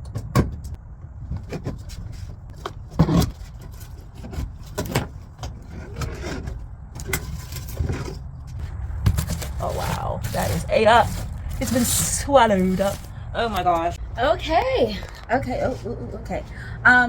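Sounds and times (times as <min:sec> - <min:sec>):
steady low rumble: 0:00.0 - 0:17.0
wood paneling being pried apart: 0:09.0 - 0:12.9.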